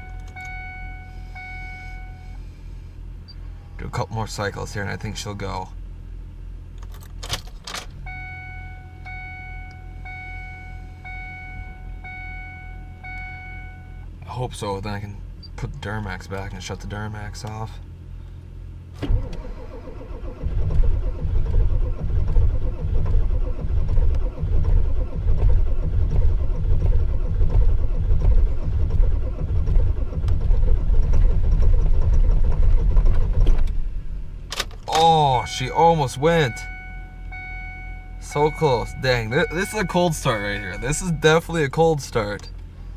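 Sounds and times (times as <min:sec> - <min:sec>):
dashboard warning chime: 0:00.0 - 0:02.4, 0:08.0 - 0:14.1, 0:34.9 - 0:42.5
low engine hum: 0:00.0 - 0:42.9.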